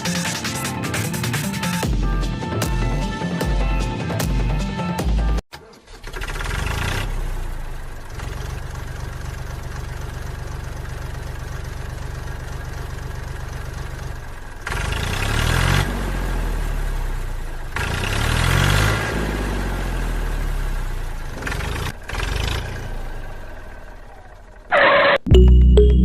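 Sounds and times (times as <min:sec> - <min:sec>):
diesel engine idling and revving: 0:05.2 - 0:25.2.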